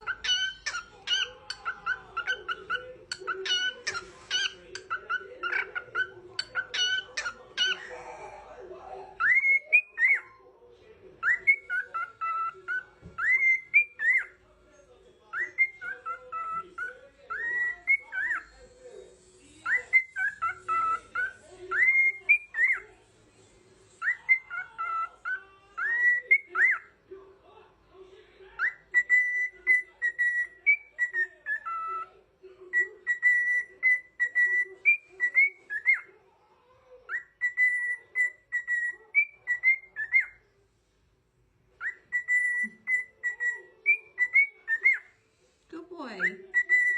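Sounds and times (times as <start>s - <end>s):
parrot whistling a tune: 11.2s - 14.3s, 15.3s - 18.5s, 19.6s - 22.8s, 24.0s - 26.9s, 28.6s - 32.1s, 32.7s - 36.1s, 37.1s - 40.4s, 41.8s - 45.2s, 46.3s - 46.9s.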